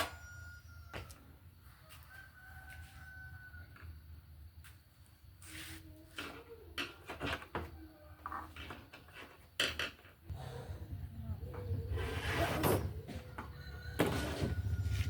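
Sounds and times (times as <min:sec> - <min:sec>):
clicks and knocks of objects: 0:06.2 - 0:10.2.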